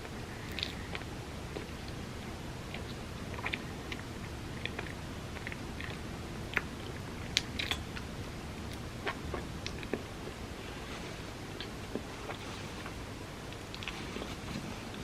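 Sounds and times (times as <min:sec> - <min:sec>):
low background noise: 0:00.0 - 0:15.0
chewing and biting: 0:00.3 - 0:02.0, 0:02.7 - 0:08.1, 0:13.5 - 0:14.0
wet mouth clicks and smacks: 0:00.4 - 0:01.7.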